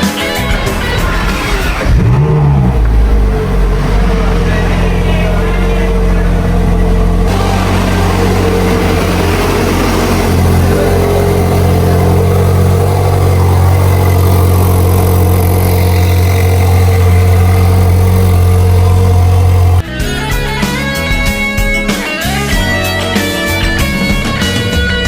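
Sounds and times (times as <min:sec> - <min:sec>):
sports car engine running: 0:00.2 - 0:19.8.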